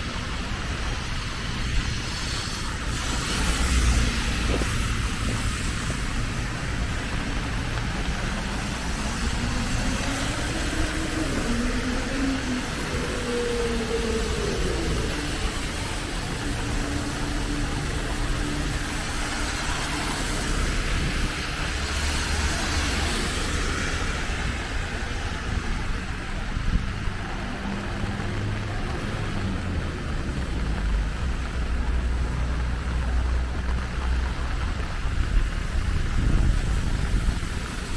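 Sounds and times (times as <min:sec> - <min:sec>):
low traffic rumble and hiss: 0:00.0 - 0:37.9
vehicle engine speeding up: 0:03.0 - 0:25.8.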